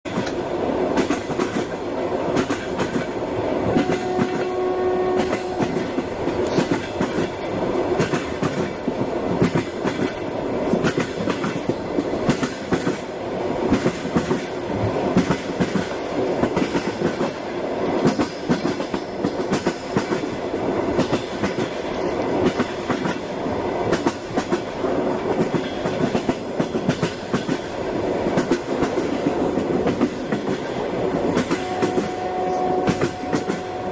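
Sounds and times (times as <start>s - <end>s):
train rattling on rails: 0.0s - 33.9s
brief steady tone: 31.5s - 33.9s.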